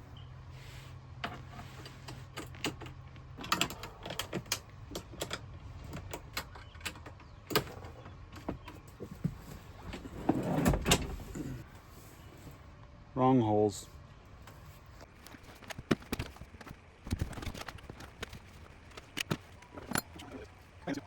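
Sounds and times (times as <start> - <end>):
low steady hum: 0.0 - 21.0
metal clicks and knocks: 15.6 - 20.6.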